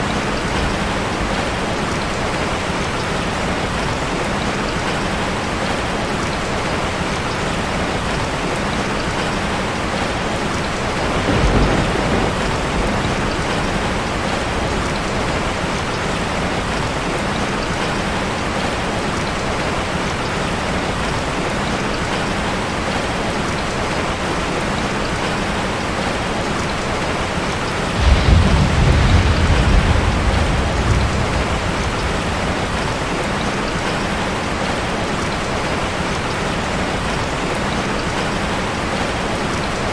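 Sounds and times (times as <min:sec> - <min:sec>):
rain drumming on a metal roof: 0:00.0 - 0:39.9
thunder rumbling: 0:10.8 - 0:17.4, 0:27.9 - 0:34.0.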